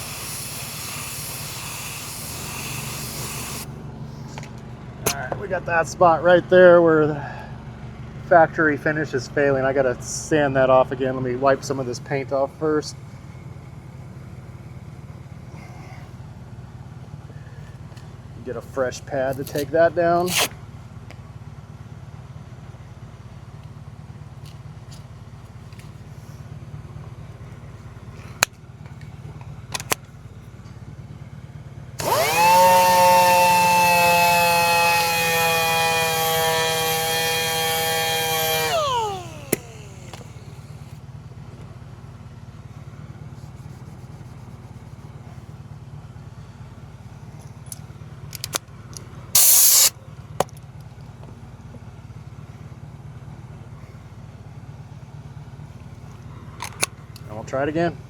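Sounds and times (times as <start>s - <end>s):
handheld sander running: 0.0s - 3.7s, 32.0s - 41.0s, 49.4s - 49.9s
steady low hum: 32.0s - 41.1s
short loud hiss: 49.4s - 49.9s.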